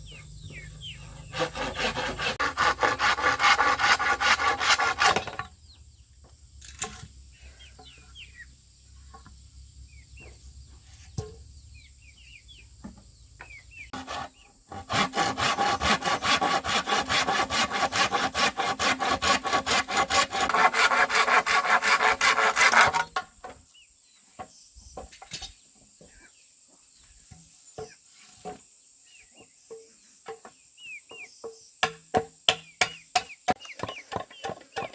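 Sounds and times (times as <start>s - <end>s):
hand tool rasping on bamboo: 1.2s - 5.4s, 13.9s - 23.2s
faint bird chirps: 7.2s - 14.6s, 23.6s - 28.4s.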